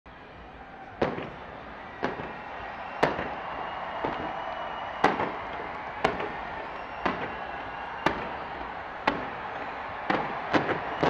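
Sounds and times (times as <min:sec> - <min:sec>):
fireworks bangs: 0:00.9 - 0:11.0.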